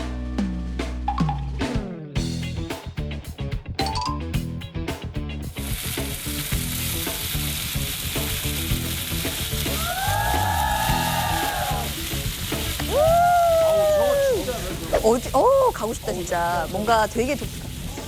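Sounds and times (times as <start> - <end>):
background music: 0.0 - 17.0
drum beat: 0.4 - 3.1, 3.8 - 18.0
chicken sizzling on hot plate: 5.6 - 18.0.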